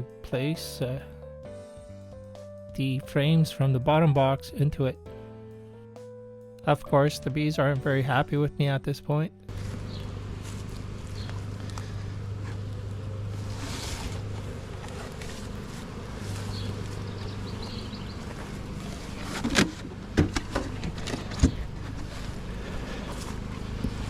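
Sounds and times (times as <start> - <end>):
steady low hum: 9.5 - 24.0
wooden frames knocking hive box: 14.2 - 21.9.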